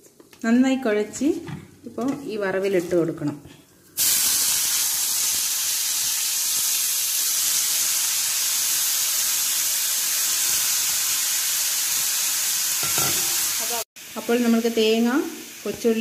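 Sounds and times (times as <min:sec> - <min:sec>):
cabbage sizzling in hot oil: 0:04.0 - 0:16.0.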